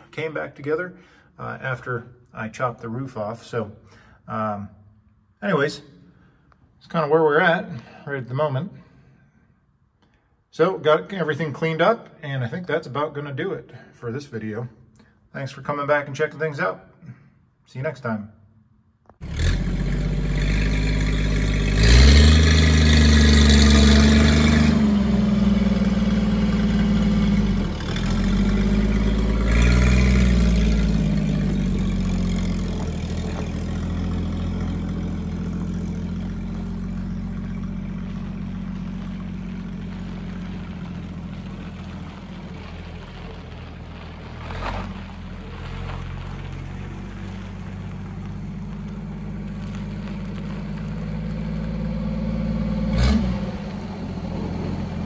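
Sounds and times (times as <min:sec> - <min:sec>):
car engine revving and idling: 0:19.1 - 0:55.0.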